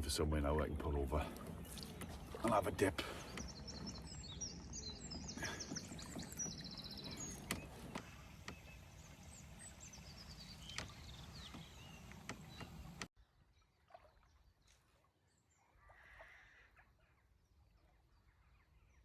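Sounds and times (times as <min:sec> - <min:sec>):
water washing: 0:00.0 - 0:13.1
small birds singing: 0:00.0 - 0:19.0
paddle knocks: 0:05.4 - 0:08.9, 0:10.5 - 0:13.1.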